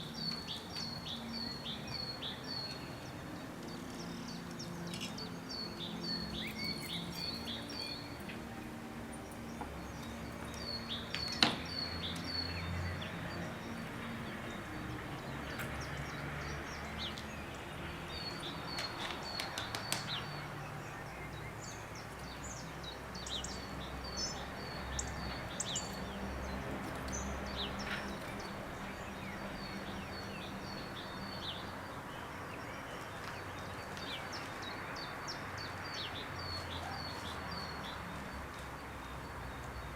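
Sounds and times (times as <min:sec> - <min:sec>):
small songbirds singing: 0:00.0 - 0:39.9.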